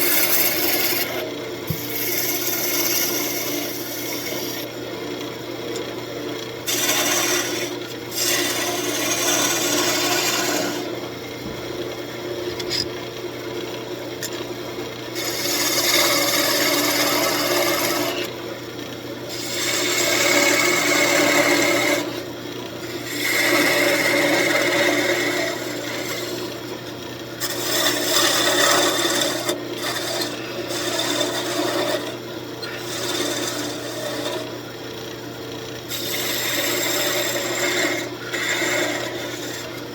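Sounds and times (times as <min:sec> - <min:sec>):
tool rasping on spinning wood: 0:00.0 - 0:04.8, 0:06.6 - 0:11.0, 0:15.1 - 0:18.4, 0:19.2 - 0:26.7, 0:27.3 - 0:34.7, 0:35.8 - 0:39.9
lathe motor hum: 0:00.0 - 0:39.9.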